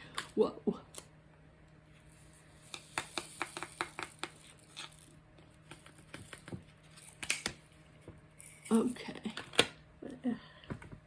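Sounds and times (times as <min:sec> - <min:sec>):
craft supplies clicking and tapping: 0:02.7 - 0:04.5.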